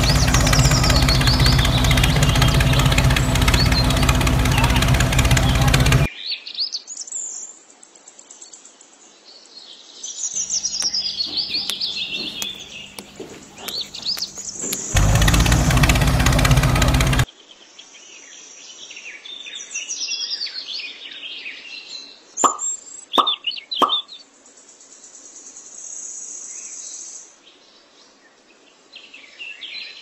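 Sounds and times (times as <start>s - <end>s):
birds chirping: 0.0s - 6.1s, 10.4s - 17.2s, 22.4s - 24.2s.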